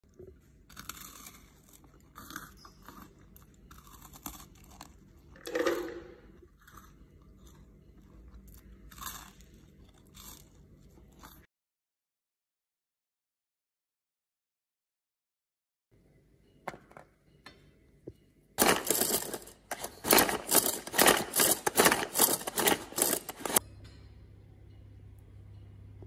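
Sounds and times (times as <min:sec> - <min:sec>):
chewing crisp garlic bread: 0:00.0 - 0:05.4, 0:06.4 - 0:11.5.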